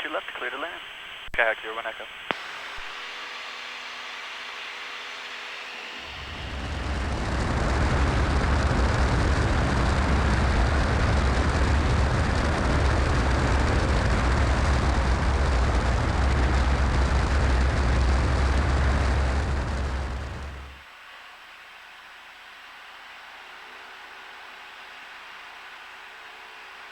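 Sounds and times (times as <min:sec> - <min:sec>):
low engine rumble: 0:05.9 - 0:20.8
rush of airflow: 0:06.1 - 0:20.8.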